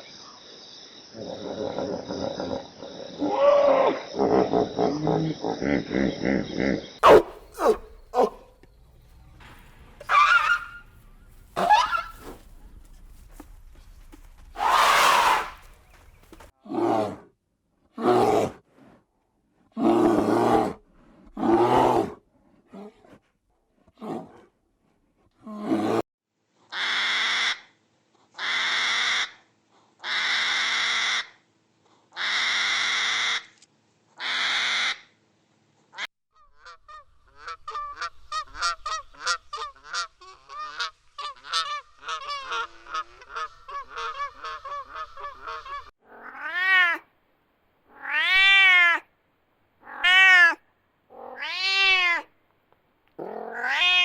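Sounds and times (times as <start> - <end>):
cat meowing: 46.1 - 47.0, 47.9 - 49.0, 49.8 - 52.3, 53.4 - 54.0.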